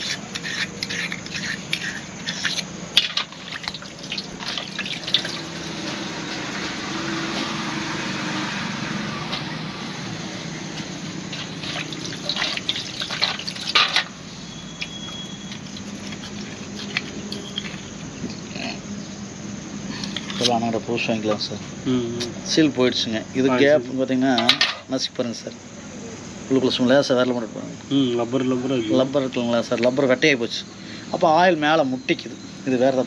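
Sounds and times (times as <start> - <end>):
water running: 0.0 - 7.3, 11.0 - 17.9.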